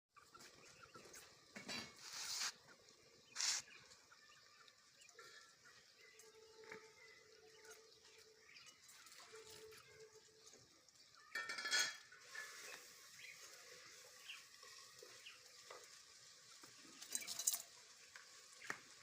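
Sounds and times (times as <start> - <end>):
rustling hissing noise: 0.7 - 4.0, 12.2 - 14.6.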